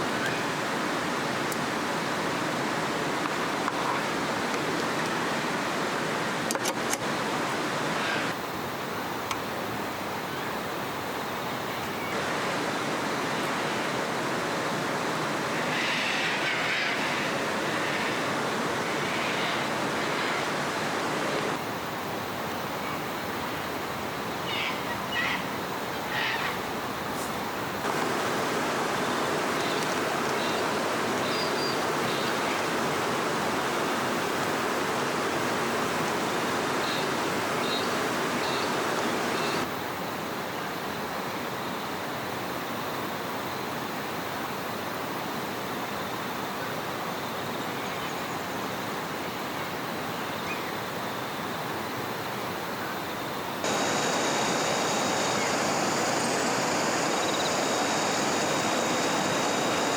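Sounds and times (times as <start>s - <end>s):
river water rushing: 0.0s - 24.1s, 26.6s - 39.7s, 53.3s - 59.9s.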